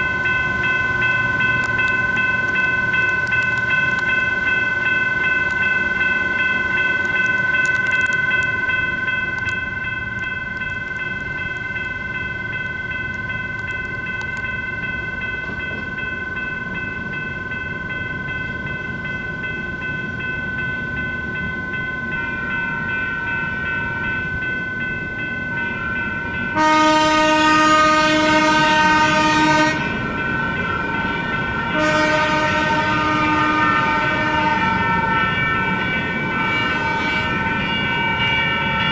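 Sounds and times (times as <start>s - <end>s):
light rail train passing: 0.0s - 38.9s
railroad crossing bell ringing: 0.0s - 38.9s
train horn blasts: 26.5s - 30.1s, 31.1s - 38.0s.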